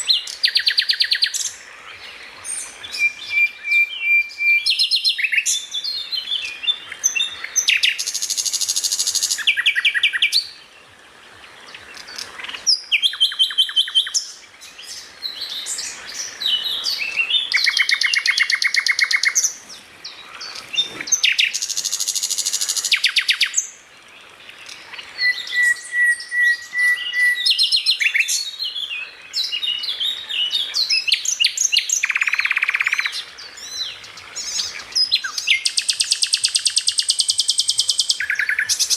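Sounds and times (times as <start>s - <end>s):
songbirds singing and calling: 0.0s - 38.9s
steady held bird whistle: 2.9s - 5.6s, 25.2s - 28.3s, 35.0s - 38.9s.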